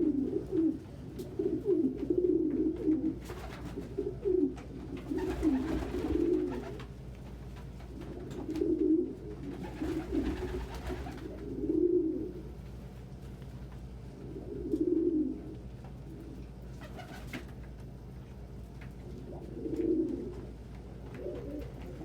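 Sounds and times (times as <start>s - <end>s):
pigeons cooing: 0.0s - 6.8s, 8.0s - 12.6s, 14.2s - 17.4s, 19.1s - 22.0s.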